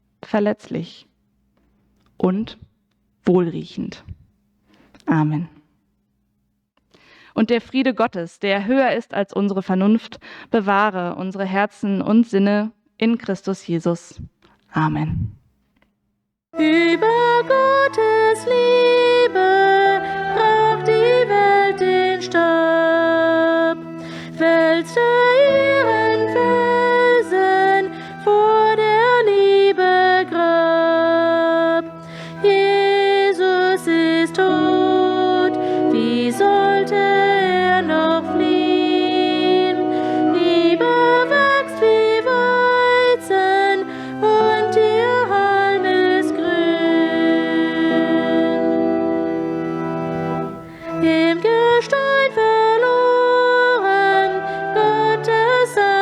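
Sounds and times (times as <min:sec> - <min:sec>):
church organ playing: 0:16.6 - 0:56.0
person singing a hymn: 0:16.6 - 0:56.0.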